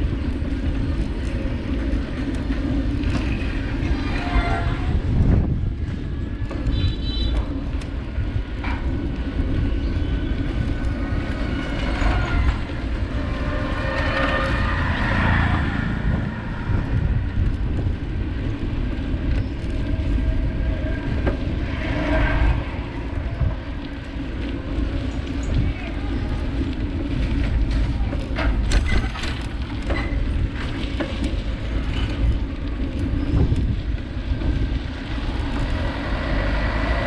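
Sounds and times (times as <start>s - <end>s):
road rumble from bike: 0.0s - 37.0s
wind buffeting microphone: 0.0s - 37.0s
passing rush: 8.1s - 28.0s, 30.6s - 37.0s.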